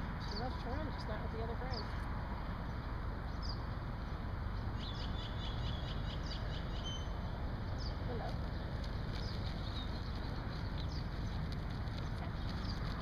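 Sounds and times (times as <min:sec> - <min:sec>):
steady outdoor rumble: 0:00.0 - 0:13.0
small bird chirping: 0:04.8 - 0:08.4, 0:09.1 - 0:13.0.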